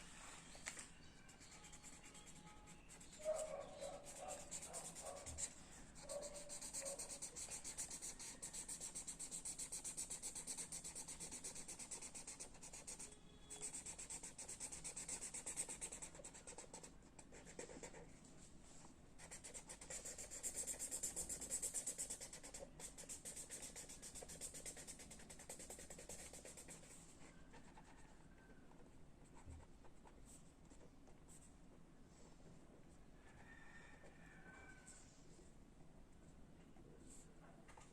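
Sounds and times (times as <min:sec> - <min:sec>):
pencil scratching on paper: 0:01.3 - 0:18.0, 0:19.2 - 0:28.2.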